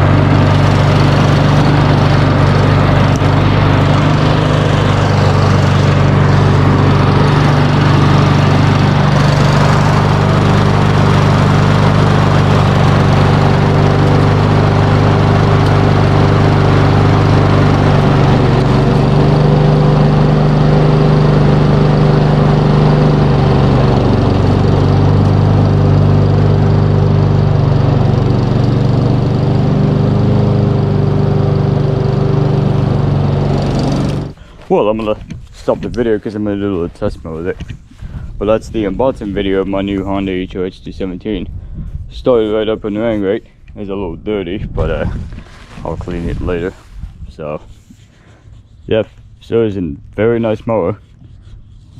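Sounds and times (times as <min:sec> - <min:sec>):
lawn mower engine running: 0:00.0 - 0:36.8.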